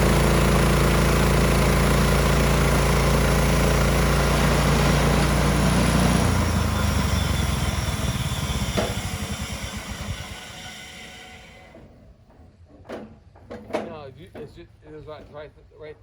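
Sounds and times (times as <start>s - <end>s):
gas engine running and shutting down: 0.0s - 11.8s.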